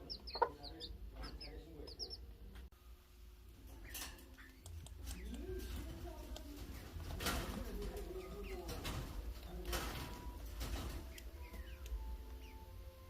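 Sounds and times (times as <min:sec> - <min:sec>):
hen clucking: 0:00.0 - 0:02.4
chicks peeping: 0:00.0 - 0:02.7, 0:03.6 - 0:13.0.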